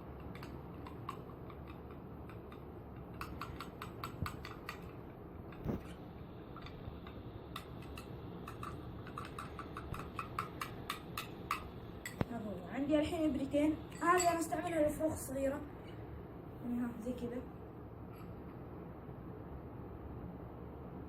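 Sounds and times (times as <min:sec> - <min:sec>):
spoon clicking against dish: 0:00.2 - 0:05.7, 0:06.6 - 0:12.3.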